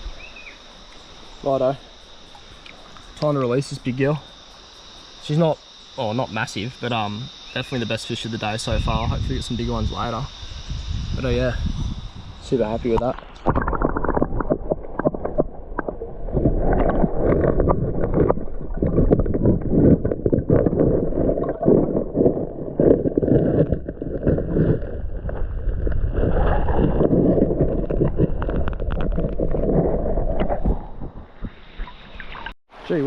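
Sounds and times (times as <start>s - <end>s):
water sloshing and gurgling: 0.7s - 5.1s, 12.0s - 32.6s.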